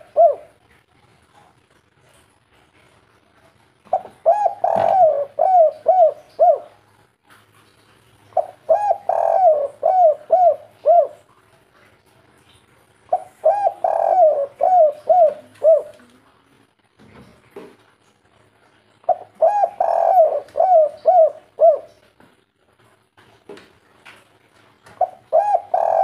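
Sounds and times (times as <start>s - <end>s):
dove cooing: 0.0s - 0.7s, 3.9s - 6.8s, 8.3s - 11.4s, 13.1s - 16.2s, 19.0s - 22.1s, 25.0s - 26.0s.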